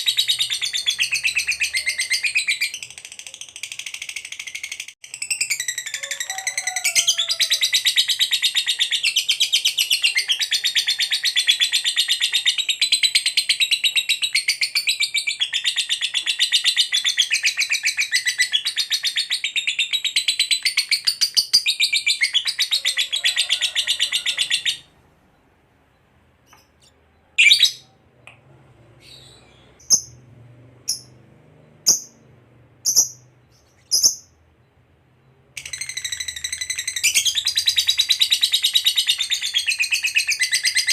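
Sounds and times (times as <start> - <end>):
lovebird chattering song: 0.0 - 24.9, 31.8 - 34.4, 35.6 - 40.9
sharp bird chirps: 29.1 - 40.9.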